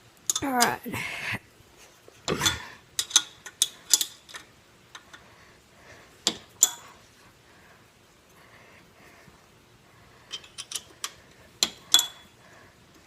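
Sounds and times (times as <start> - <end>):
wrench clicking on bolts: 2.5 - 5.2, 10.3 - 12.2.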